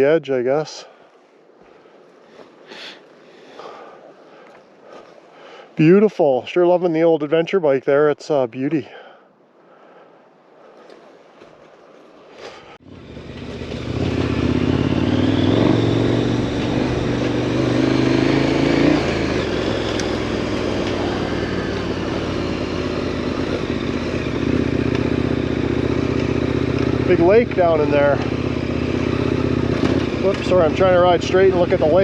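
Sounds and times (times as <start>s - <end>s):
motorcycle engine running: 12.8s - 32.0s.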